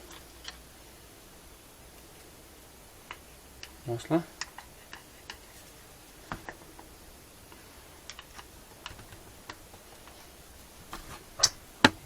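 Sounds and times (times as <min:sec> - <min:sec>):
small metal parts clicking: 0:08.0 - 0:10.2.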